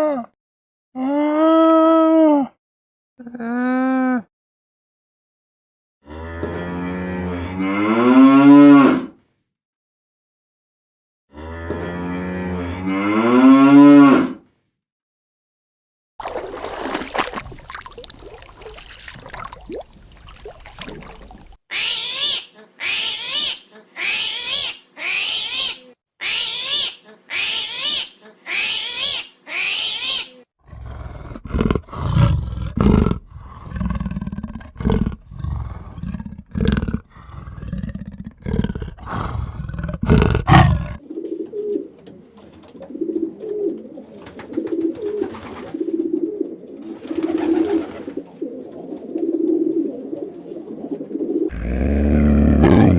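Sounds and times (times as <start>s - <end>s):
animal calls: 21.0s - 41.0s, 51.5s - 52.9s.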